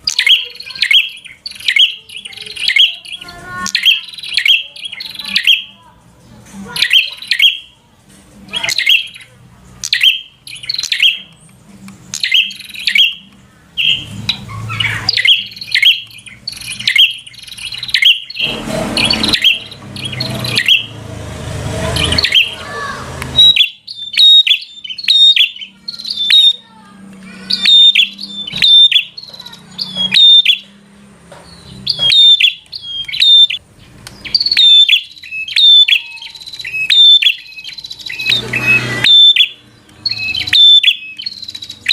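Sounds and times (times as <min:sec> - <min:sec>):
bird chirping: 0:00.0 - 0:05.9, 0:06.7 - 0:07.8, 0:08.4 - 0:41.9
low rumbling noise: 0:17.6 - 0:23.4.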